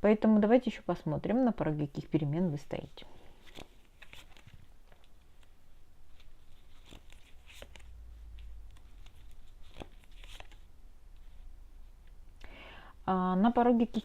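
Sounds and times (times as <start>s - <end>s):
cards rustling: 3.2s - 11.4s.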